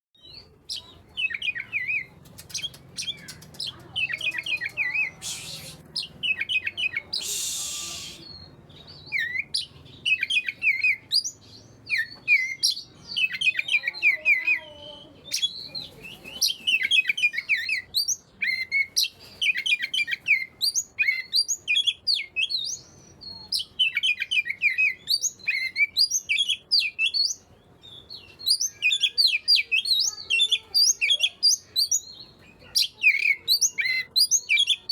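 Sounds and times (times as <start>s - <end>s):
bird singing chirps and whistles: 4.0s - 14.5s, 15.3s - 27.4s, 28.0s - 34.9s
bird harsh hissing bursts: 5.1s - 5.9s, 7.2s - 8.4s.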